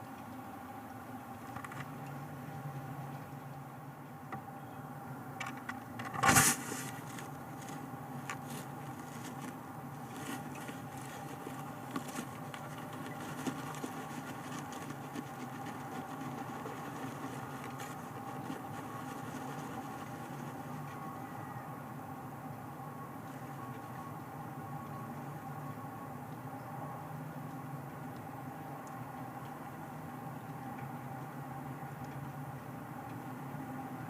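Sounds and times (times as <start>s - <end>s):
electrical hum: 0.0s - 34.0s
bird scuffle: 6.0s - 21.1s
bird scraping nest material: 6.1s - 21.1s.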